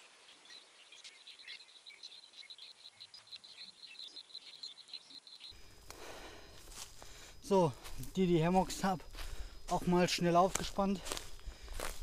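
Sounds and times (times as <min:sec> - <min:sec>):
scattered bird calls: 0:00.0 - 0:07.4.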